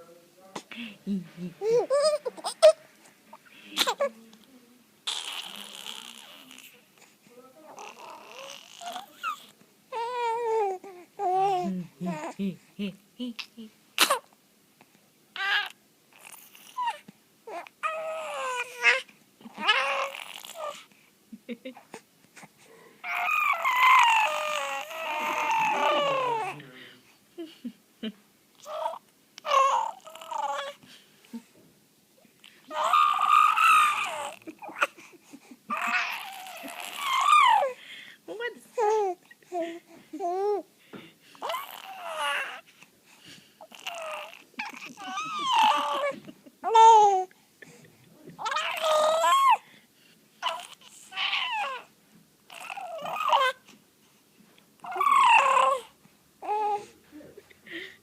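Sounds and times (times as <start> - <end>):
baby squealing and whimpering: 1.6 - 2.8, 5.0 - 6.8, 7.7 - 12.4, 15.4 - 20.9, 23.0 - 26.8, 28.6 - 30.8, 32.7 - 35.0, 35.7 - 37.8, 41.4 - 42.7, 43.6 - 47.3, 48.4 - 49.7, 50.4 - 51.9, 52.5 - 53.7, 54.8 - 56.9
baby squealing: 5.1 - 6.6, 23.0 - 26.6, 32.7 - 34.9, 35.7 - 37.7, 43.7 - 47.3, 48.4 - 49.6, 54.8 - 55.8.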